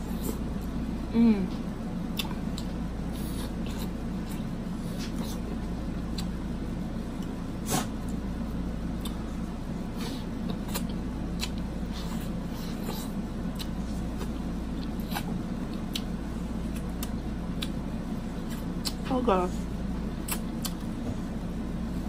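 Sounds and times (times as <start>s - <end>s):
steady low hum: 0.0s - 22.0s
wet chewing mouth clicks: 2.1s - 2.7s, 13.5s - 17.8s, 20.2s - 20.9s.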